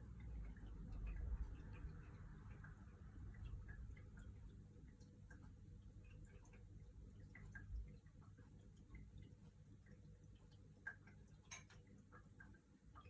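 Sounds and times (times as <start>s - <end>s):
faint small clicks: 3.3s - 13.0s.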